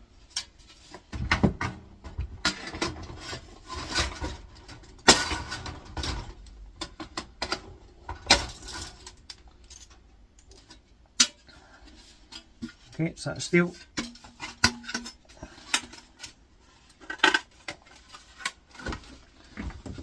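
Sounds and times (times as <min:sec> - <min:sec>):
sheet metal clattering and scraping: 0:02.4 - 0:10.0.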